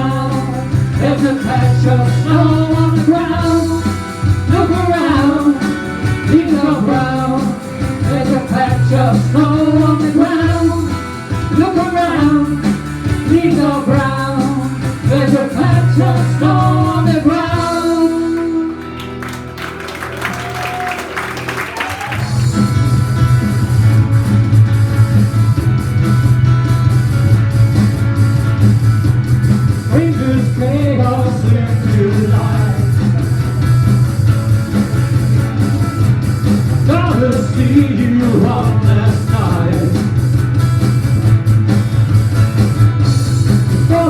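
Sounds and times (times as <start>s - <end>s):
electric guitar phrases: 0.0s - 44.0s
loud low bass: 22.2s - 44.0s.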